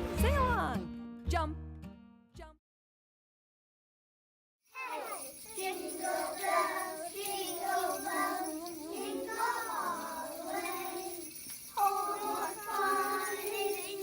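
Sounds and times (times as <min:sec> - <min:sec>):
young children singing: 0:04.8 - 0:14.0.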